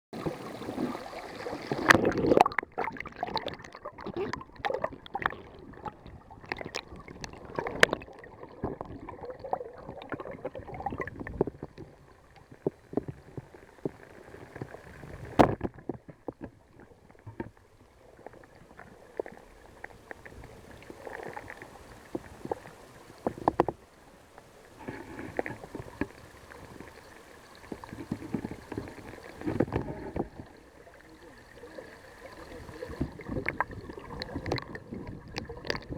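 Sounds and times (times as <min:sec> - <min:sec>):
muffled water gurgling underwater: 0:00.2 - 0:17.4, 0:24.8 - 0:35.9.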